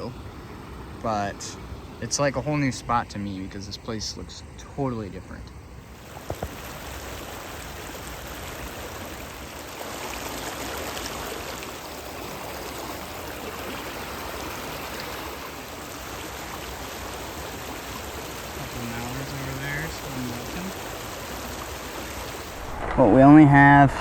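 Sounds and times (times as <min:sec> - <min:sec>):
creek water rushing over rocks: 0:06.0 - 0:24.0.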